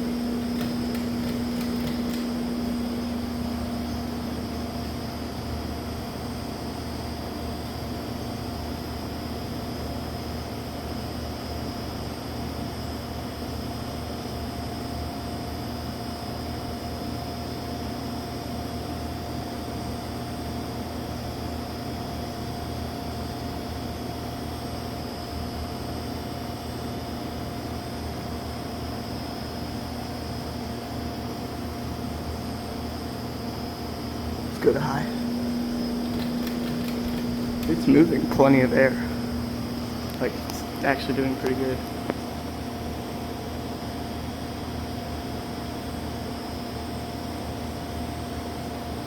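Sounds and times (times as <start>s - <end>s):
ceiling fan air rushing: 0.0s - 6.3s, 32.0s - 42.8s
fan motor hum: 0.0s - 10.6s, 20.2s - 48.1s
faint clicks: 35.3s - 37.8s.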